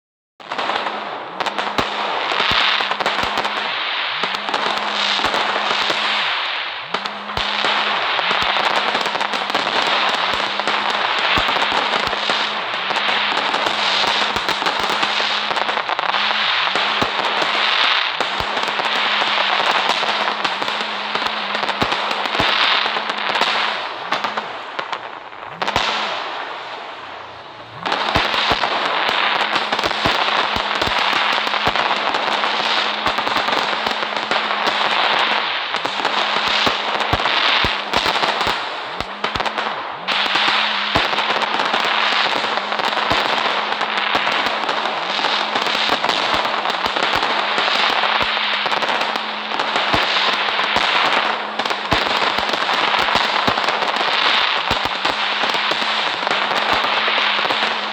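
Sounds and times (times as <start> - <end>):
firecrackers crackling and popping: 0.4 - 57.9.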